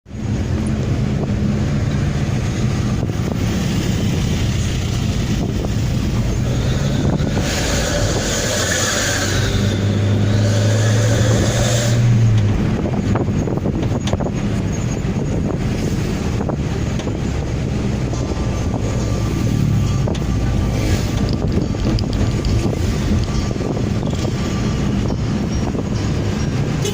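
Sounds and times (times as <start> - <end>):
car exhaust droning: 0.1 - 26.9.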